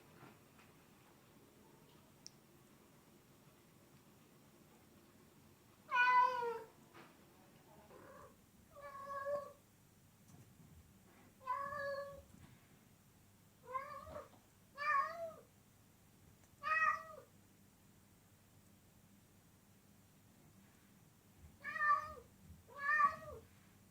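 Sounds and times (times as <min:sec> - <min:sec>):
cat meowing: 0:05.9 - 0:06.7, 0:07.9 - 0:09.6, 0:11.4 - 0:12.2, 0:13.6 - 0:15.4, 0:16.6 - 0:17.3, 0:21.6 - 0:23.4.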